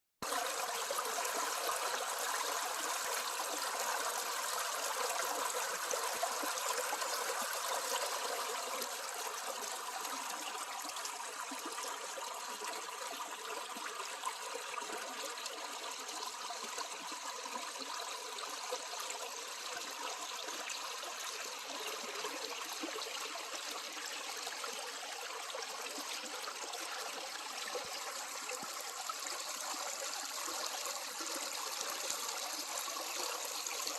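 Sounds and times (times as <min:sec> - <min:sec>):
stream water trickling: 0:00.2 - 0:33.9.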